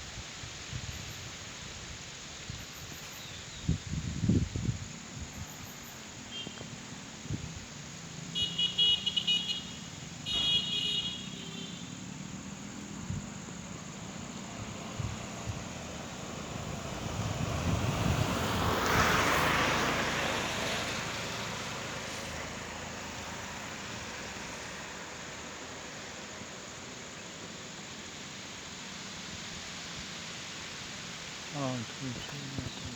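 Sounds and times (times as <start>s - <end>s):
vehicle passing by: 11.8s - 27.0s.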